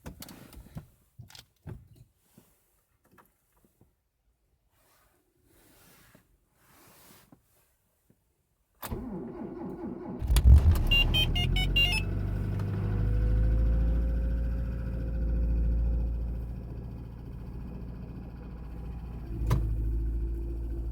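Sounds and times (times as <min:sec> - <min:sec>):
ignition click: 0:08.8 - 0:12.0
car starter cranking: 0:08.8 - 0:13.1
car engine idling: 0:10.2 - 0:20.9.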